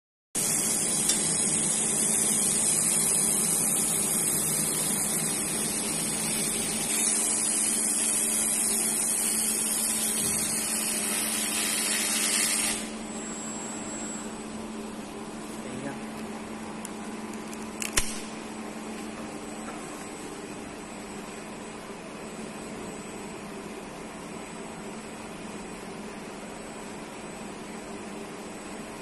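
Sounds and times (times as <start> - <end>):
laser welding hiss: 0.4 - 13.0
machine hum: 0.4 - 29.0.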